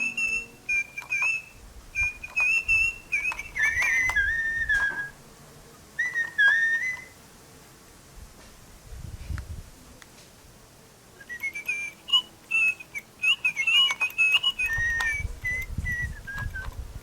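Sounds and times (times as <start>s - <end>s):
electronic bird chirps: 0.0s - 5.2s, 6.0s - 7.2s, 11.3s - 16.8s.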